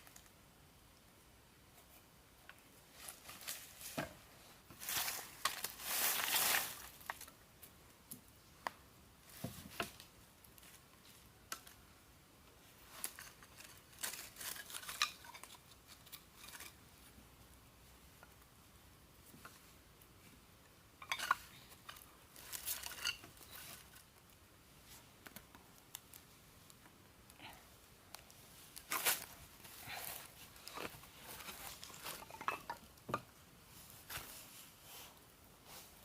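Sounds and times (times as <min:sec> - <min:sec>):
scraping and rustling: 0:12.8 - 0:17.1, 0:21.1 - 0:24.2, 0:28.6 - 0:32.9.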